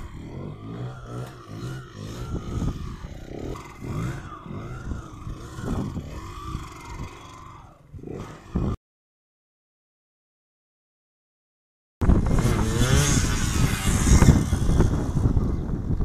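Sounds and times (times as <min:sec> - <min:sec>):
dirt bike engine revving: 0:00.0 - 0:08.8, 0:12.0 - 0:16.0.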